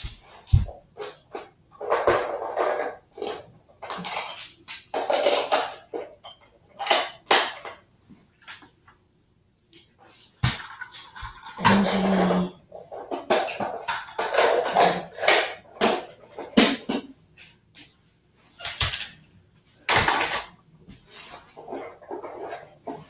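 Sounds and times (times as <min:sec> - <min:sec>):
scraping of hard objects: 0:11.4 - 0:17.1
hard objects knocking: 0:11.6 - 0:17.1.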